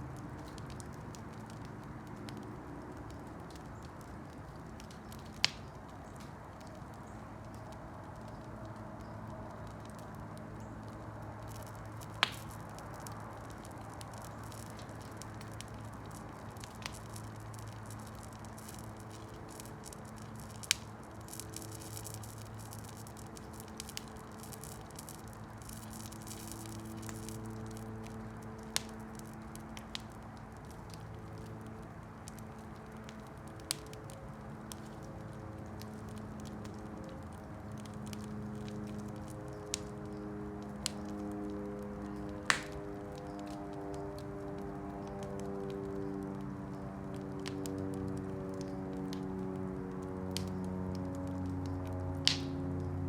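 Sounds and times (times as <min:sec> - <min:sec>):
campfire hissing: 0:00.1 - 0:53.0
wood popping: 0:11.4 - 0:29.2, 0:42.5 - 0:42.8, 0:52.2 - 0:52.6.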